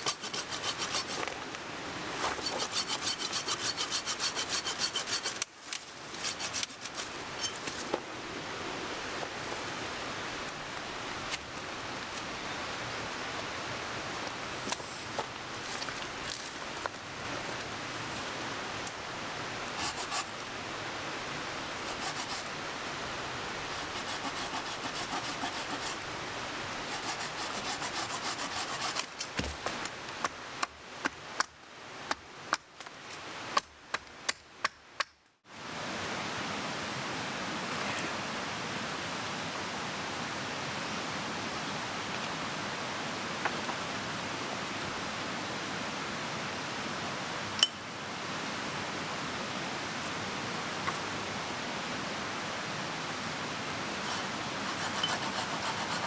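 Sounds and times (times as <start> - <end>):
mountain stream rushing: 0.0 - 30.6, 35.5 - 56.0
rhythmic scraping strokes: 2.4 - 5.4.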